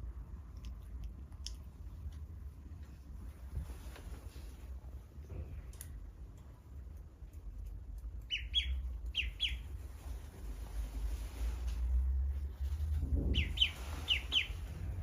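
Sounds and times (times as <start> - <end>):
duckling peeping: 8.2 - 10.1, 13.2 - 15.0
low rumble: 8.8 - 15.0.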